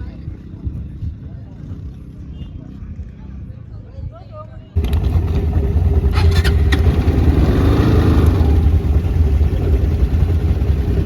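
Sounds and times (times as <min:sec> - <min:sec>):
quad bike engine running: 0:04.8 - 0:11.0.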